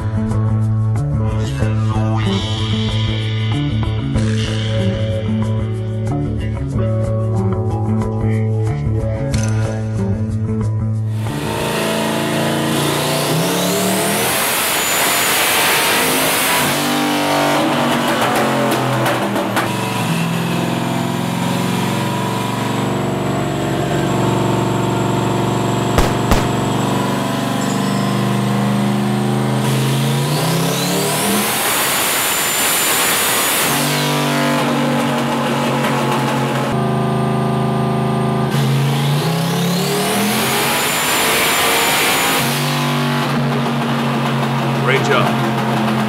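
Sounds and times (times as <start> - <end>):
car engine revving: 11.2 - 17.0
sharp cracks: 26.0 - 27.2.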